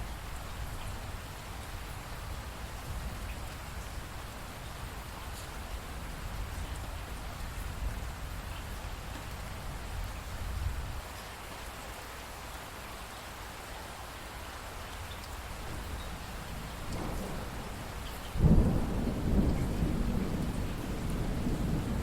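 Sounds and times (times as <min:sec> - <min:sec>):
steady rain falling: 0:00.0 - 0:22.0
rain drop ticks: 0:14.9 - 0:22.0.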